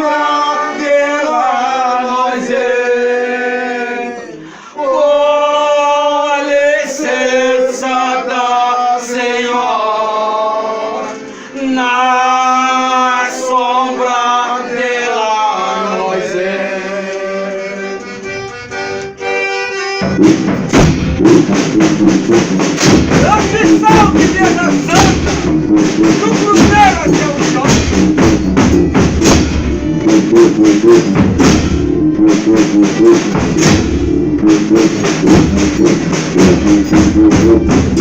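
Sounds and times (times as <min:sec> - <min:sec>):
voices singing devotional folk music: 0:00.0 - 0:19.4, 0:23.2 - 0:28.0
drum strikes: 0:20.0 - 0:38.0
tambourine strikes: 0:35.0 - 0:38.0.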